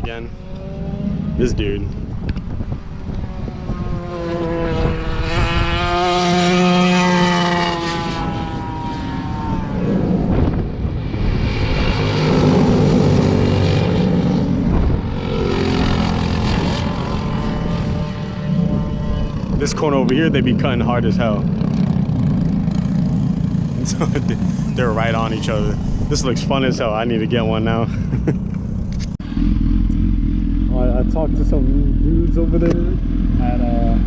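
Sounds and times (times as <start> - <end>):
mini-bike engines buzzing past: 3.3 - 26.0.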